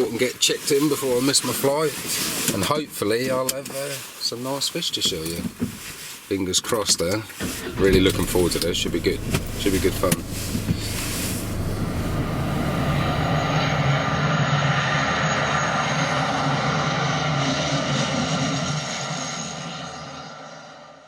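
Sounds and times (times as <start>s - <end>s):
airliner engines running: 7.6s - 21.0s.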